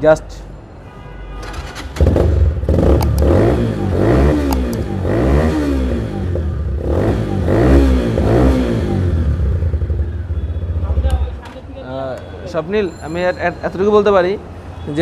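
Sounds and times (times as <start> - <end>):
motorcycle engine revving: 1.5 - 11.3.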